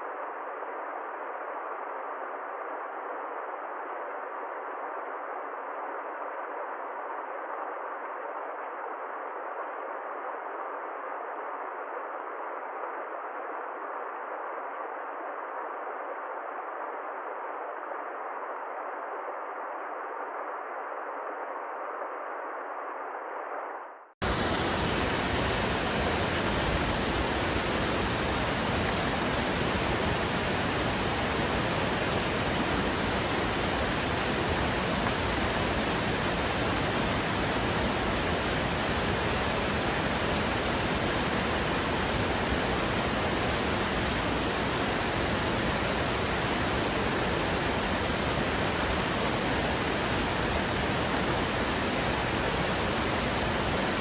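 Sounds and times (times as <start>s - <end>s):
waterfall rushing: 24.2s - 54.0s.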